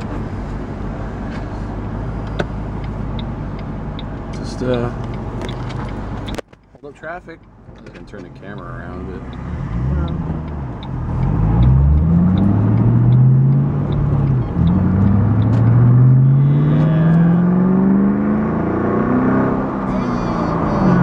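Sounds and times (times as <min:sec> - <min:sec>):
faint steady ticking: 0:02.2 - 0:16.2
car engine accelerating: 0:08.2 - 0:21.0.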